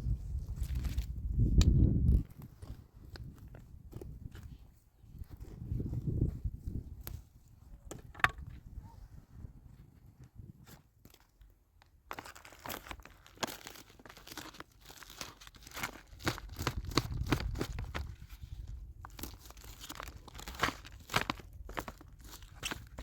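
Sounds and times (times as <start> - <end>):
plant stems tearing and snapping: 12.1 - 18.2, 19.1 - 23.0.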